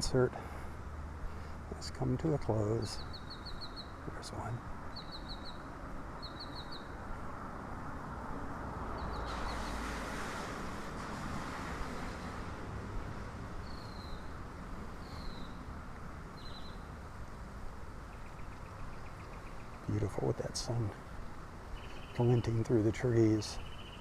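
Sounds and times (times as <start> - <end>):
songbird calls: 2.6 - 7.0, 13.6 - 14.4, 15.0 - 15.7, 16.3 - 17.0, 18.0 - 20.8, 21.7 - 24.0.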